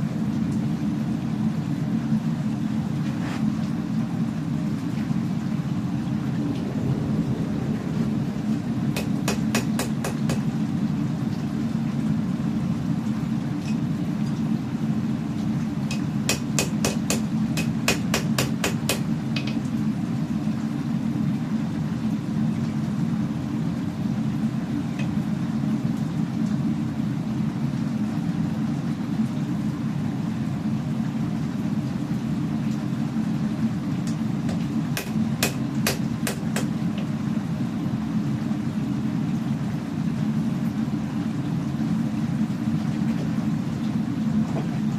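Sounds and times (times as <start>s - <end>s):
low rumble: 5.1s - 11.6s
hammer striking steel: 9.0s - 10.4s, 15.9s - 19.0s, 35.0s - 36.7s.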